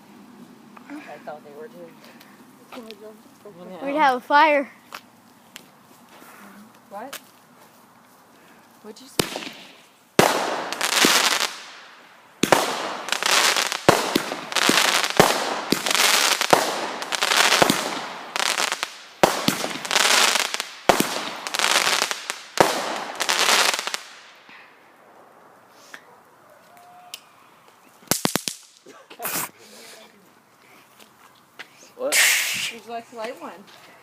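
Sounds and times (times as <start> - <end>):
crackling hiss of fireworks: 0.0 - 34.0
fireworks banging: 9.0 - 24.4, 28.0 - 28.9.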